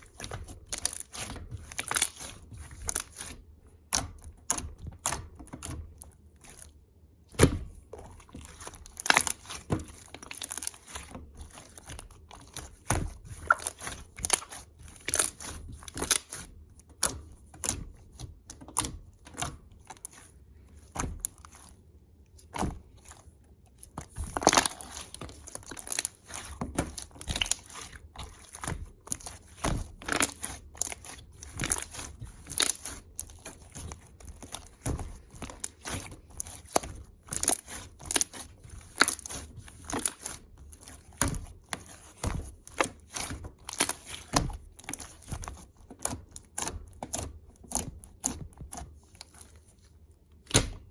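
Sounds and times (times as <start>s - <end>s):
crinkles and sharp clicks: 0.0s - 50.9s.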